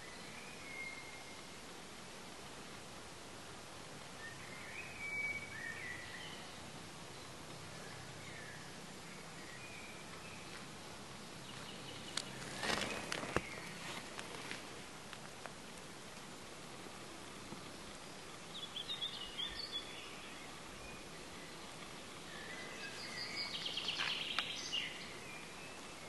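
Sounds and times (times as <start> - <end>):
faint birdsong: 0.0 - 26.0
outdoor background hiss: 0.0 - 26.0
rustling and sharp clicks: 12.1 - 16.3.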